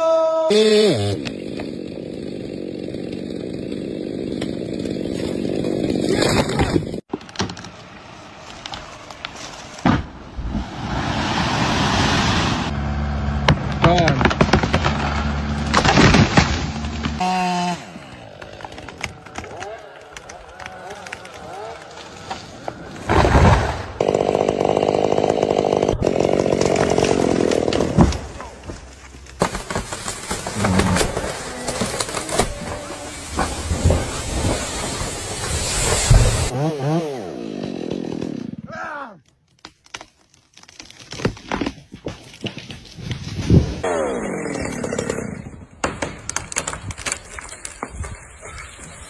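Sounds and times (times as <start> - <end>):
chainsaw running: 0.5 - 7.0, 12.9 - 23.2, 24.0 - 38.7.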